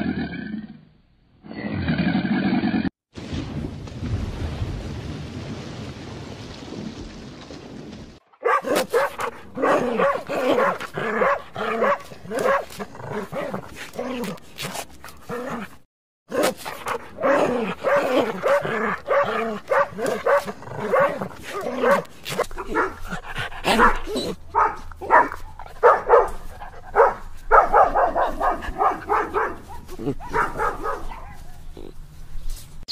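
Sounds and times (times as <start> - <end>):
dog yelping and whimpering: 16.6 - 32.0.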